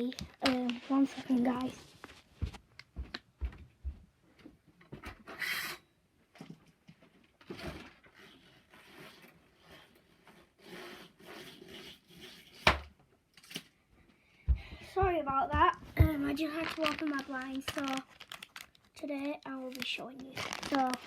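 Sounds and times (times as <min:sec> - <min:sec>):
window blinds swishing: 0:07.6 - 0:12.7, 0:20.3 - 0:21.0.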